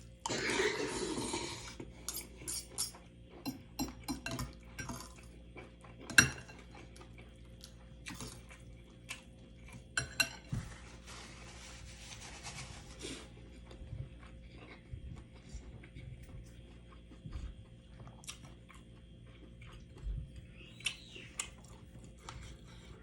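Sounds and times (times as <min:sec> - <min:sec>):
cutlery clinking on a plate: 0:06.1 - 0:06.6, 0:10.0 - 0:10.5.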